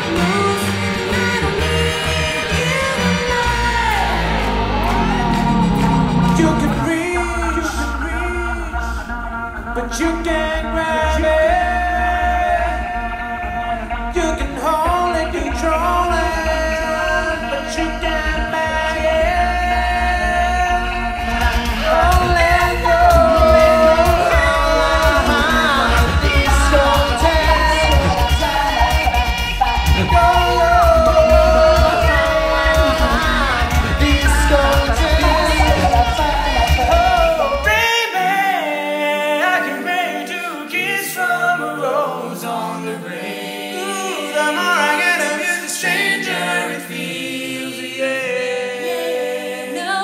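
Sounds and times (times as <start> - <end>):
deep vocal bass: 0.0 - 38.0
a cappella group singing: 0.0 - 50.0.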